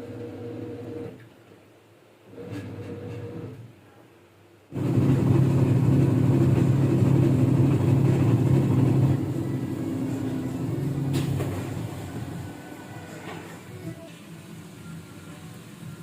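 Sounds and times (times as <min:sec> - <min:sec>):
washing machine motor hum: 0:00.0 - 0:01.3, 0:02.2 - 0:03.7, 0:04.7 - 0:16.0.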